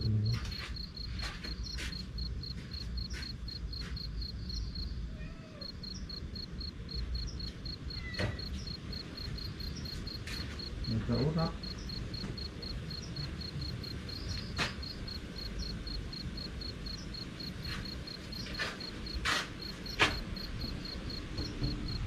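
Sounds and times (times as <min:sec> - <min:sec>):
cricket chirping: 0:00.0 - 0:22.0
wind rumble: 0:05.8 - 0:22.0.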